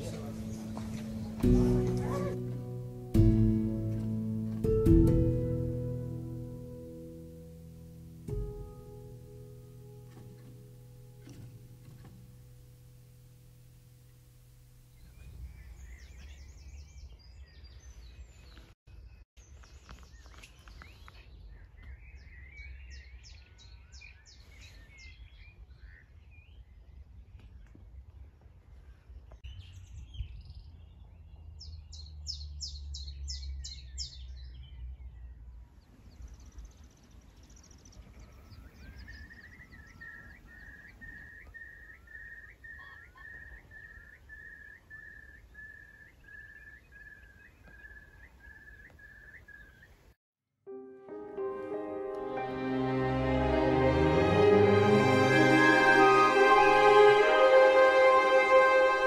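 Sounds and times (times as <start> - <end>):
birds singing with rapid trills: 29.5 - 35.4, 36.1 - 50.0.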